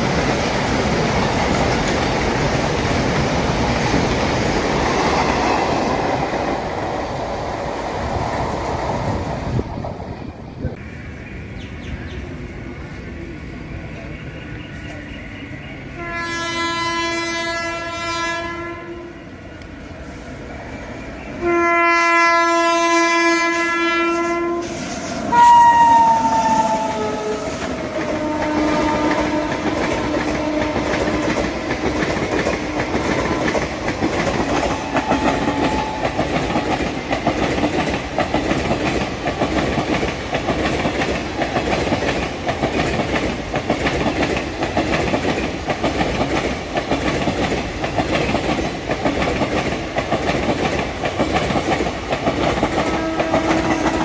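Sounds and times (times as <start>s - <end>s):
locomotive horn blasts: 15.9s - 19.2s, 21.4s - 31.3s, 52.8s - 54.0s
train wheels clattering over rail joints: 27.7s - 54.0s.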